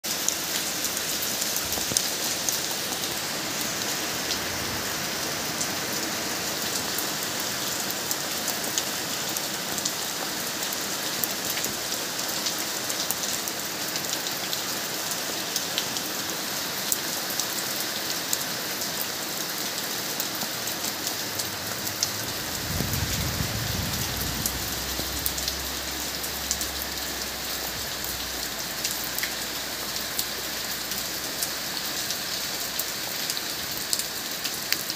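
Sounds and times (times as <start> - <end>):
steady rain falling: 0.0 - 34.9
raindrops ticking: 20.9 - 34.9
low rumble: 21.4 - 28.4.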